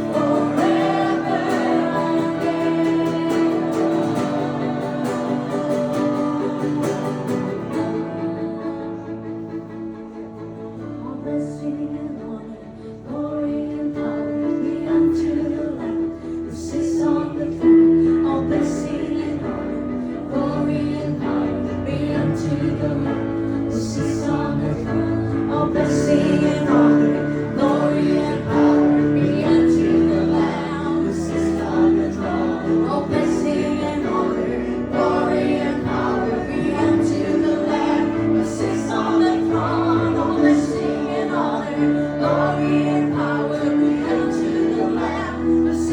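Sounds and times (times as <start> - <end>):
voices singing together: 0.0 - 9.8, 11.0 - 45.9
strummed acoustic guitar: 0.0 - 11.4.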